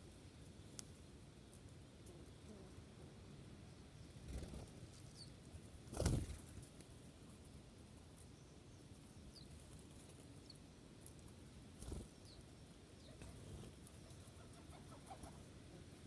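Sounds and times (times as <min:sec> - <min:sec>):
faint bird chirps: 0:03.6 - 0:05.4, 0:11.8 - 0:15.5.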